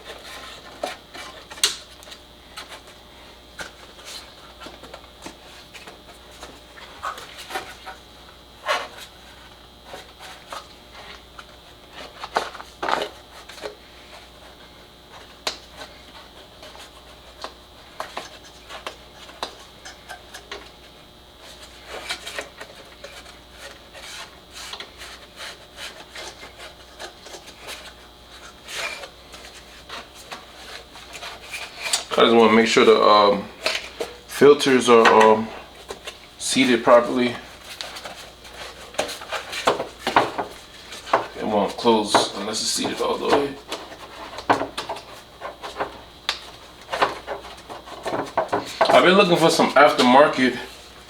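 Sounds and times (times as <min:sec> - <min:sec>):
plastic parts rubbing and clicking: 0:36.8 - 0:50.3.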